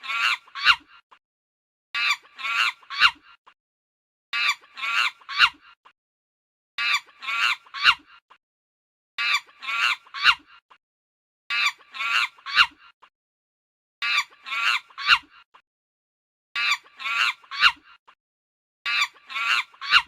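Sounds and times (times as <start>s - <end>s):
chicken calling: 0.0s - 0.9s, 2.0s - 3.2s, 4.4s - 5.6s, 6.8s - 8.0s, 9.2s - 10.4s, 11.5s - 12.8s, 14.0s - 15.3s, 16.6s - 17.8s, 18.9s - 20.0s.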